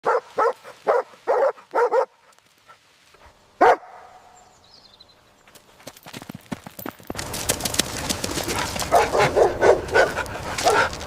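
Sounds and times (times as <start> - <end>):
dog barking: 0.0 - 2.2, 3.6 - 4.3, 8.9 - 10.9.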